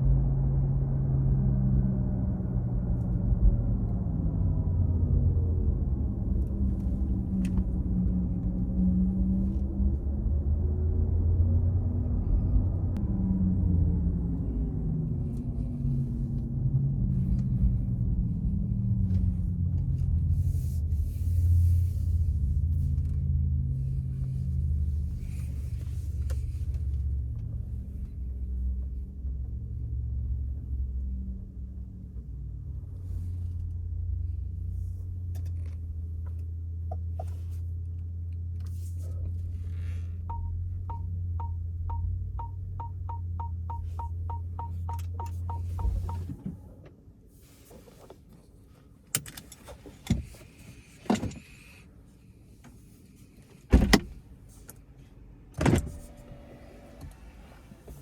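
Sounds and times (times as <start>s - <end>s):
road and tyre rumble: 0.0s - 58.0s
parking sensor beeps: 40.3s - 46.4s.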